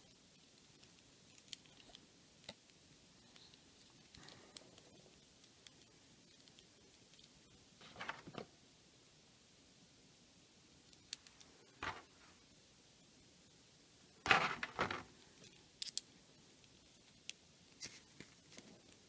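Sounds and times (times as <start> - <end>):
plastic parts clicking: 14.3 - 16.1.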